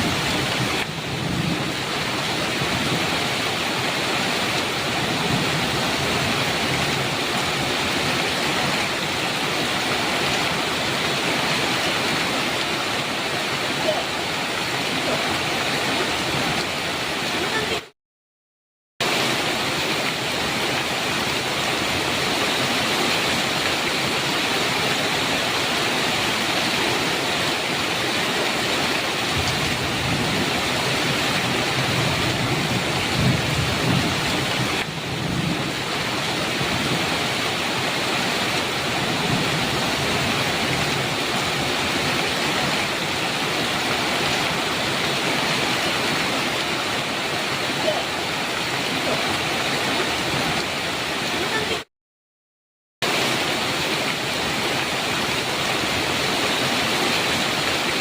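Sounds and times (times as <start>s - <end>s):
low rumble of thunder: 0.0s - 1.8s, 31.6s - 37.1s
heavy rain falling: 0.0s - 17.9s, 19.0s - 51.9s, 53.0s - 58.0s.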